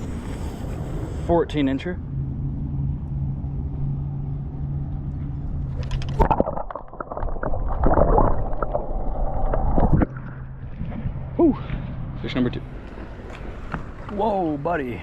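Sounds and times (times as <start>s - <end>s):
steady low hum: 0.0s - 15.0s
water splashing against kayak: 5.6s - 15.0s.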